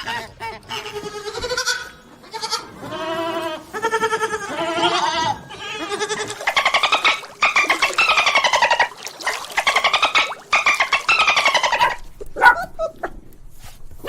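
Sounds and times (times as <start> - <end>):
goat bleating: 0.0 - 7.3.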